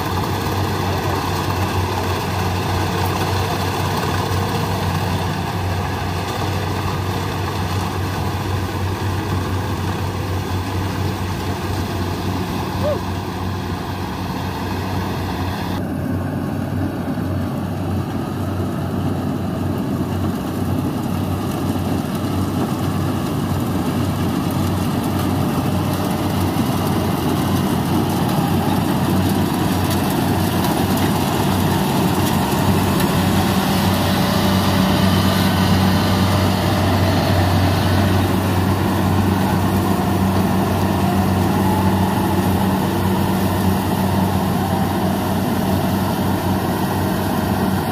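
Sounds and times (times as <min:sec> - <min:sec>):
diesel engine running: 0:00.0 - 0:47.9
harvester rattle: 0:20.2 - 0:47.9.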